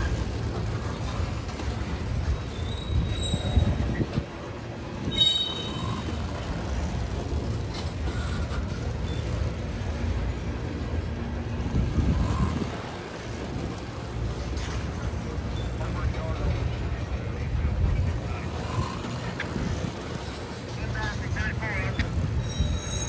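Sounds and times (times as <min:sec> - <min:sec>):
freight train wheels rumbling on rails: 0:00.0 - 0:23.0
high wheel squeal: 0:02.2 - 0:04.2, 0:05.0 - 0:06.8, 0:07.7 - 0:09.8, 0:21.8 - 0:23.0.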